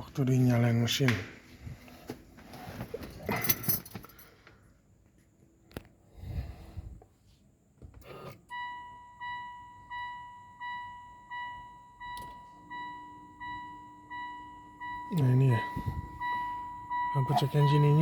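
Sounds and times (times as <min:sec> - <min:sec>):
dashboard warning chime dinging: 0:08.4 - 0:18.0.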